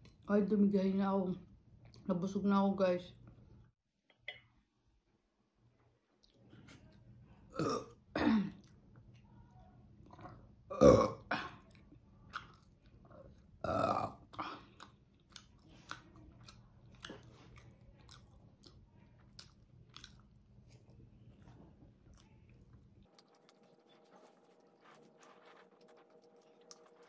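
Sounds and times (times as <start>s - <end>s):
loud burp: 7.5s - 8.5s, 10.7s - 11.6s, 13.6s - 14.2s
wet chewing clicks: 11.6s - 13.6s, 14.3s - 21.0s, 22.0s - 27.0s.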